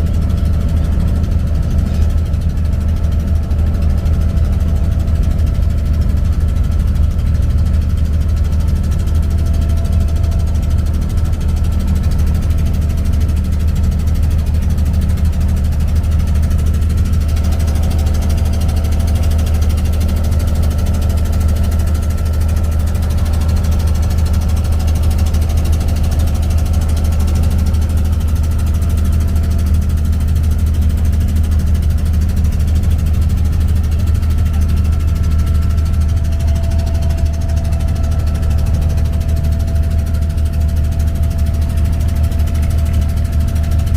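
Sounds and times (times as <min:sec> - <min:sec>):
boat diesel engine droning: 0:00.0 - 0:43.9.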